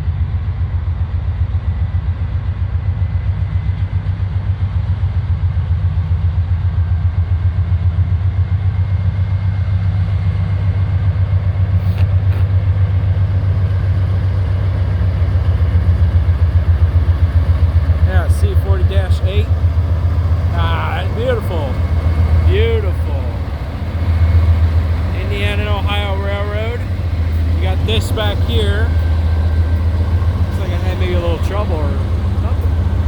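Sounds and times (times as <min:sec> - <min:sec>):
locomotive diesel engine rumbling: 0:00.0 - 0:33.0.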